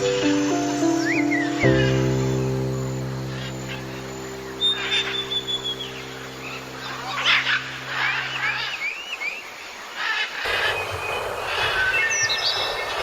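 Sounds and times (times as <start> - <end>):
low musical drone: 0.0 - 8.9
outdoor ambience: 0.0 - 13.0
wild birds chirping: 0.0 - 13.0.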